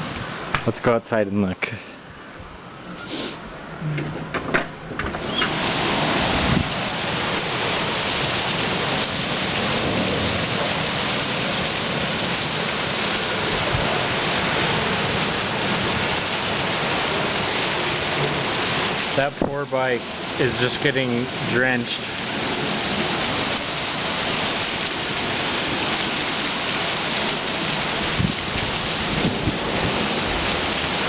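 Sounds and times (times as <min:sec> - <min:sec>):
heavy rain downpour: 0:00.0 - 0:00.8, 0:05.0 - 0:31.0
sharp clicks and knocks: 0:04.0 - 0:05.5.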